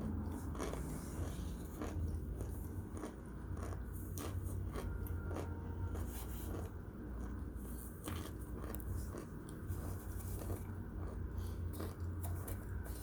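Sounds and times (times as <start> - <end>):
crunching and chewing: 0.0 - 13.0
low steady hum: 0.0 - 13.0.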